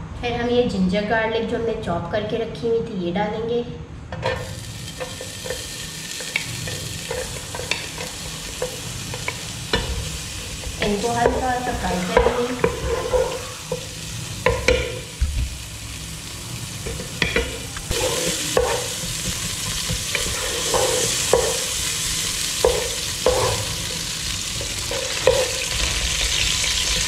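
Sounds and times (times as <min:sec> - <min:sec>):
ginger and garlic sizzling in oil: 0:04.4 - 0:27.0
wooden spatula scraping a pot: 0:10.8 - 0:13.9, 0:17.9 - 0:21.8, 0:22.6 - 0:24.0.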